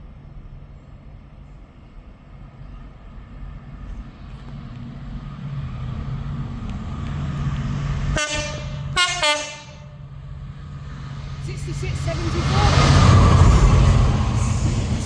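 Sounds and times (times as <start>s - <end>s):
train rumbling: 0.0s - 15.0s
train horn toots: 8.2s - 10.0s.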